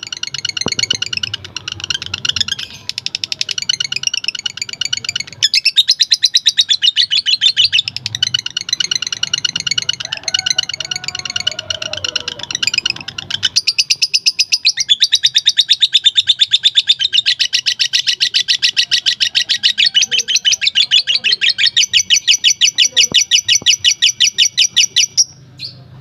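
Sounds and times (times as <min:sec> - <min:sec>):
lovebird chattering song: 0:00.0 - 0:25.8.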